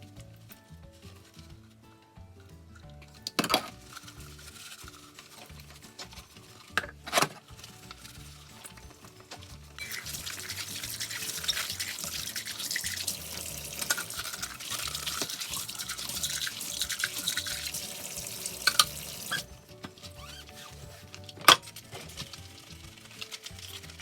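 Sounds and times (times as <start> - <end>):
tap running into a sink: 9.8 - 19.5.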